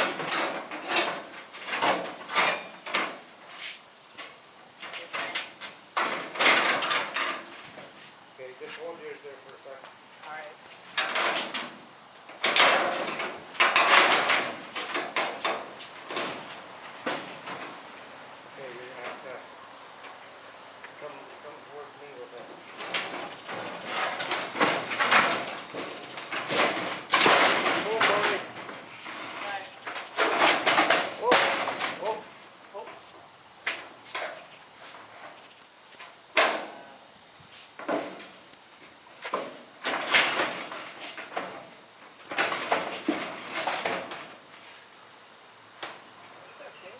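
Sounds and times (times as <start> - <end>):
steel sections clanking and scraping: 0.0 - 8.1, 10.2 - 17.8, 22.6 - 33.1, 39.3 - 44.4
crickets chirring: 0.0 - 46.9
sudden knocks or scrapes: 22.6 - 35.5, 37.5 - 38.4, 39.2 - 44.8.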